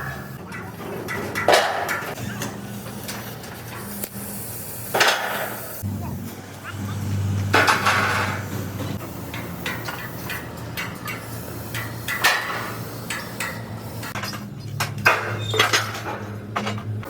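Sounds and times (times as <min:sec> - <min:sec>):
metal clanks and knocks: 0:00.0 - 0:04.0, 0:07.4 - 0:17.0
low machine hum: 0:05.8 - 0:09.8.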